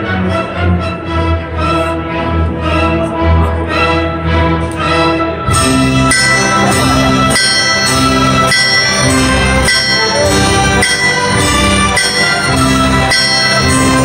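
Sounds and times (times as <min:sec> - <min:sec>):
orchestra playing: 0:00.0 - 0:14.0
ringing metal strikes: 0:05.6 - 0:14.0.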